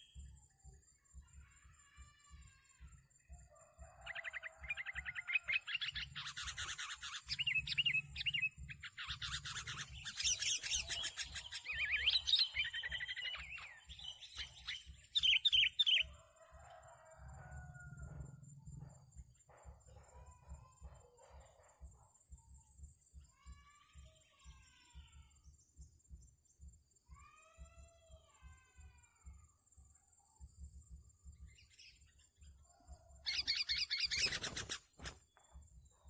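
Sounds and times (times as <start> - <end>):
birds chirping and whistling: 4.0 - 16.2, 31.4 - 35.5.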